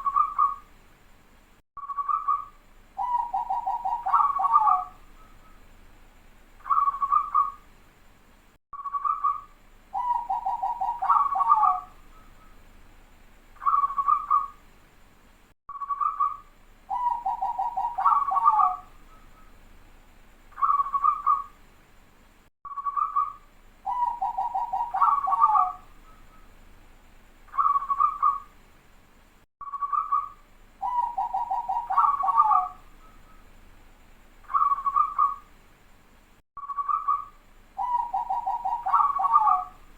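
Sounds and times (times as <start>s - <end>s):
zebra dove cooing: 0.0s - 0.6s, 2.0s - 5.0s, 10.0s - 12.0s, 13.6s - 14.6s, 15.9s - 19.5s, 20.6s - 21.5s, 22.9s - 26.4s, 27.5s - 28.5s, 29.8s - 33.4s, 34.5s - 35.5s, 36.8s - 39.9s.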